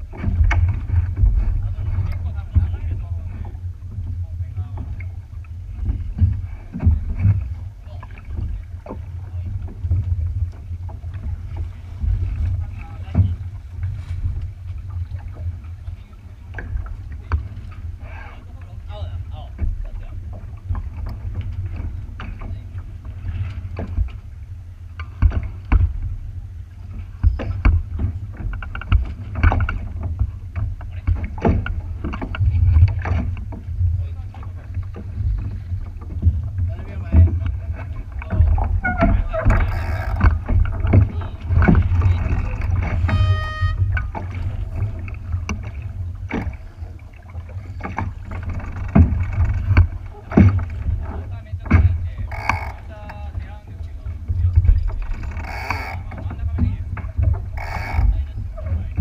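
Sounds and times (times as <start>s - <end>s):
low wind rumble on microphone: 0.0s - 59.0s
water slapping against boat hull: 0.0s - 59.0s
short high beep: 43.1s - 44.0s.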